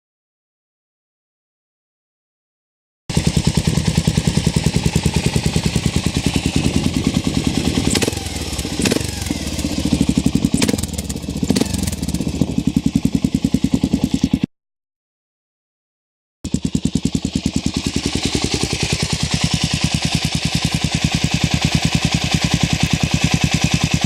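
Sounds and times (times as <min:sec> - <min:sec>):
motorcycle engine idling: 0:03.1 - 0:14.5, 0:16.4 - 0:24.0.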